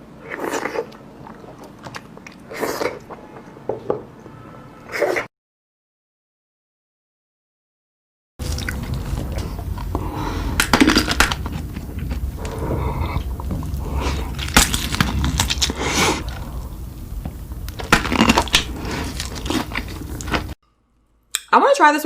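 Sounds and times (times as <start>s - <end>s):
crunchy food chewing: 8.4s - 20.6s
low steady hum: 8.4s - 22.0s.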